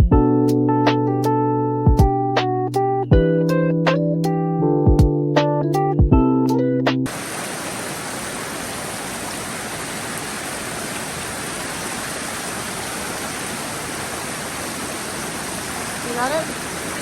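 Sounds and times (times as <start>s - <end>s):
piano music: 0.0s - 7.1s
flowing water rushing: 7.1s - 17.0s.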